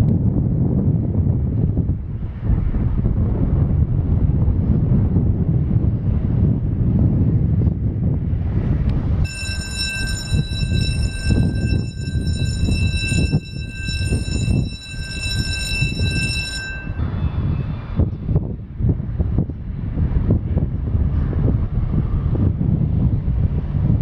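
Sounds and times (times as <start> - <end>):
wind on microphone: 0.0 - 24.0
barge diesel engine rumbling: 9.2 - 17.4
high-pitched whistling whine: 9.3 - 18.2.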